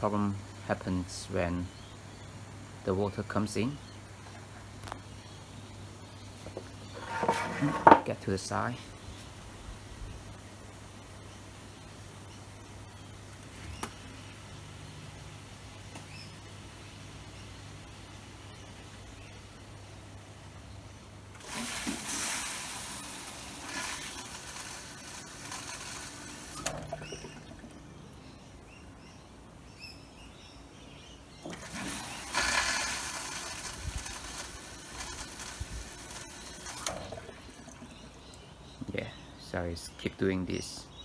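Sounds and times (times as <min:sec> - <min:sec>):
dishwasher taking in water: 0:21.3 - 0:28.1, 0:31.4 - 0:38.3.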